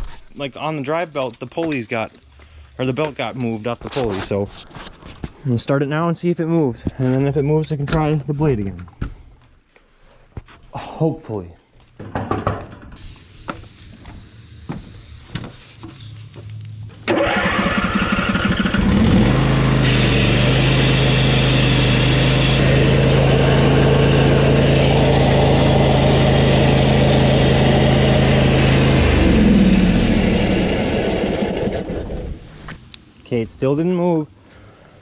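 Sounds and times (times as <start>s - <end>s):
lawn mower engine running: 17.0s - 32.4s
starter motor cranking: 17.0s - 32.4s.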